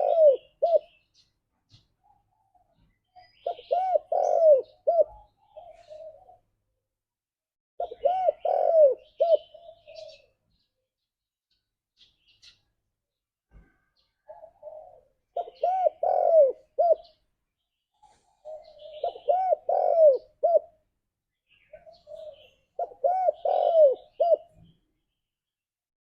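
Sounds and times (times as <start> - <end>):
dove cooing: 0.0 - 1.0, 2.0 - 6.6, 7.8 - 10.4, 14.2 - 17.2, 18.0 - 20.8, 21.5 - 24.8.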